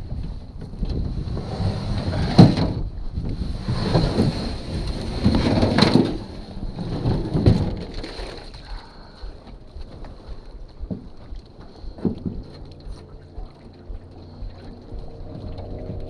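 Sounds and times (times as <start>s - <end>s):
low rumble: 0.0s - 16.0s
paddle splashing in water: 7.6s - 9.4s.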